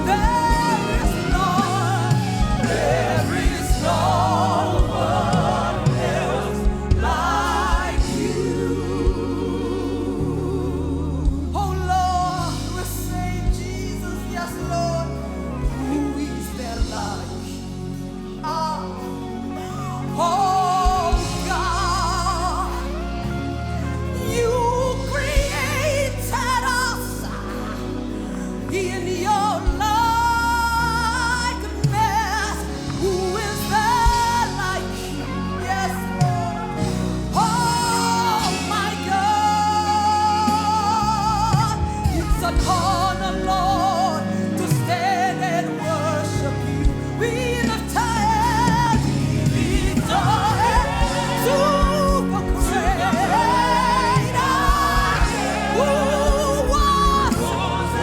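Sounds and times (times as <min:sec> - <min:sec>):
bass: 0:00.0 - 0:58.0
person singing with vibrato: 0:00.0 - 0:58.0
sustained keyboard chords: 0:00.0 - 0:58.0.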